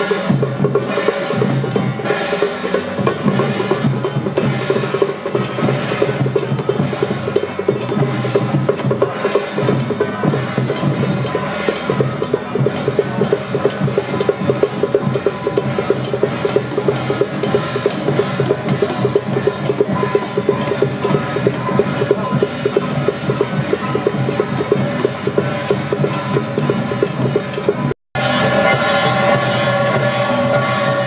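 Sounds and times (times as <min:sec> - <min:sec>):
drums and clappers beating: 0:00.0 - 0:31.0.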